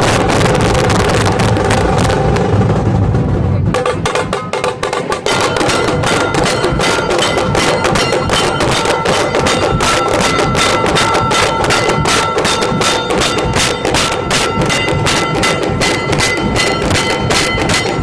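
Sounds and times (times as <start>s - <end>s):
wind rumble on microphone: 0.0s - 3.9s
rapid drum strokes: 0.0s - 18.0s.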